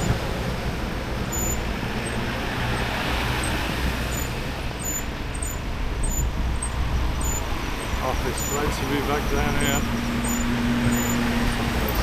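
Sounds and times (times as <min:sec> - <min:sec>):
road traffic: 0:00.0 - 0:12.0
wind and tyre noise: 0:00.0 - 0:12.0
faint high chirps: 0:01.3 - 0:02.2, 0:04.1 - 0:08.6, 0:09.6 - 0:11.2.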